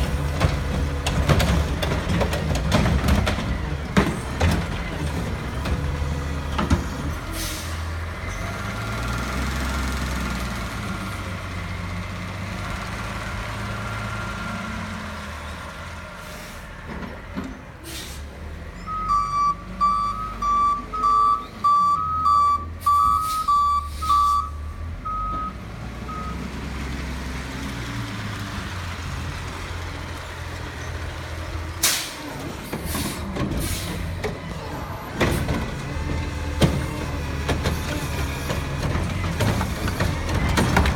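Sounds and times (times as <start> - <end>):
backup alarm beeping: 18.8 - 26.4.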